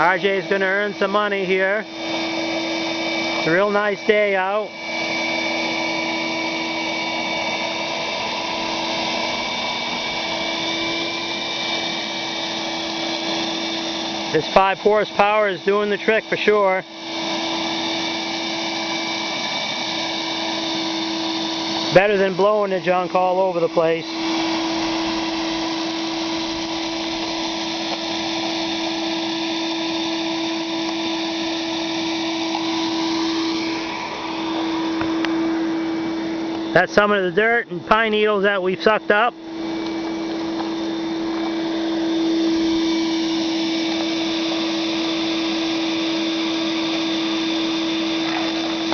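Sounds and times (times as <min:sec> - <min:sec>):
shop vacuum whining: 0:00.0 - 0:48.9
air rushing through nozzle: 0:39.4 - 0:48.9.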